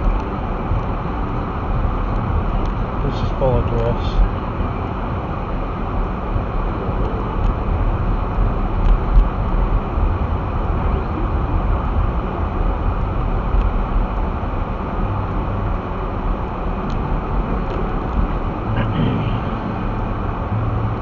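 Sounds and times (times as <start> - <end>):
engine and tyres in snow: 0.0 - 21.0.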